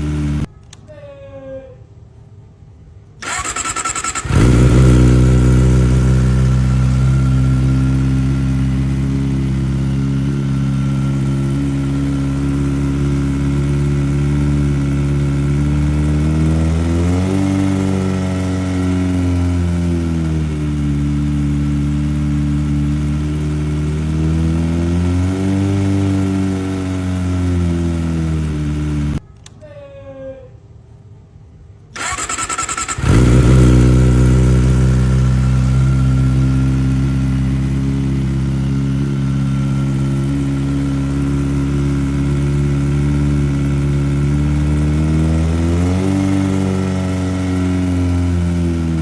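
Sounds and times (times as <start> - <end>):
motorcycle engine idling and revving: 0.0 - 0.5, 3.2 - 29.2, 32.0 - 49.0
starter motor cranking: 3.2 - 5.6, 32.0 - 34.7.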